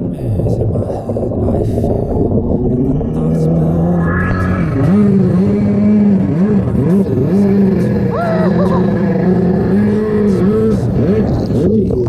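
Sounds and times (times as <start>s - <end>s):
jet ski engine at high revs: 4.7s - 12.0s.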